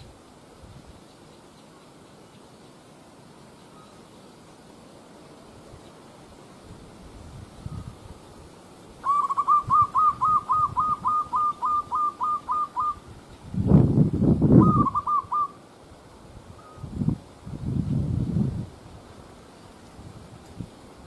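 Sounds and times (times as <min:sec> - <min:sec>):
bird piping notes: 0:09.0 - 0:13.0, 0:14.6 - 0:15.6.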